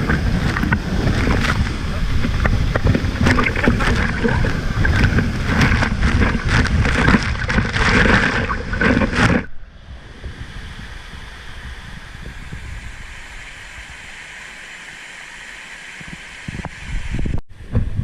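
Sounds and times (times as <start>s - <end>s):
motor running: 0.0s - 9.5s
sharp crackles: 0.0s - 9.6s
wind buffeting microphone: 0.0s - 14.2s, 16.1s - 18.0s
steady outdoor hiss: 0.0s - 18.0s.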